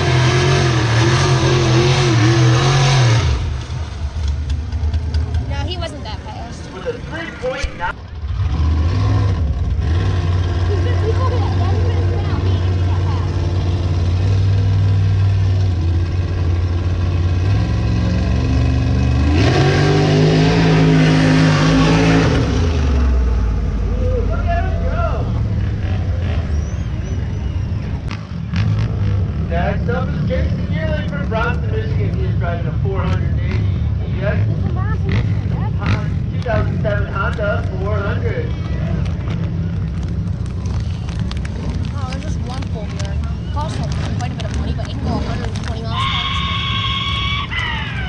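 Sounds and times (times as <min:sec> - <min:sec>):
vehicle engine revving: 0:00.0 - 0:48.0.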